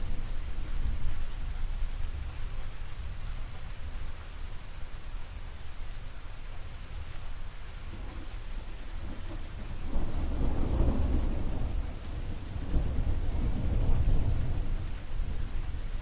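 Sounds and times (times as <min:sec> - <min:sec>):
thunder rumbling: 0:00.0 - 0:05.0, 0:06.0 - 0:16.0
steady rain: 0:00.0 - 0:16.0.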